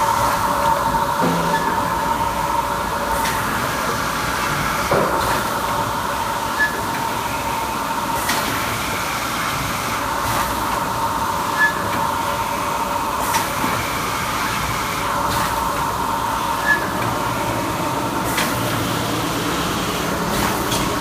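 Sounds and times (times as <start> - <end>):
filling machine humming: 0.0 - 8.1.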